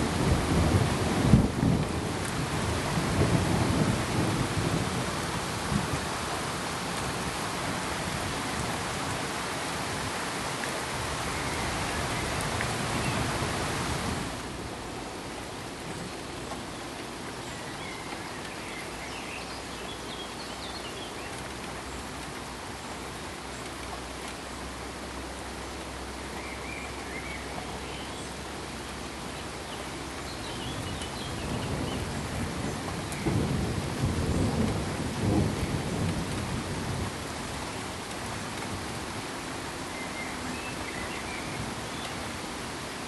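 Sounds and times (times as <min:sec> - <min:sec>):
pink noise hiss: 0:00.0 - 0:43.0
steady rain: 0:00.0 - 0:43.0
thunder rolling: 0:31.4 - 0:37.2.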